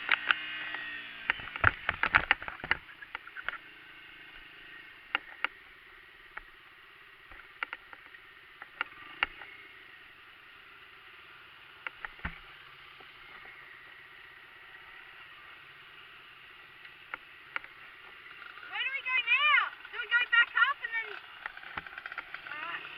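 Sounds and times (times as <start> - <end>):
sharp clicks and knocks: 0.0 - 3.6, 7.3 - 9.5, 11.8 - 13.5, 19.8 - 22.5
dirt bike engine humming: 0.0 - 22.9.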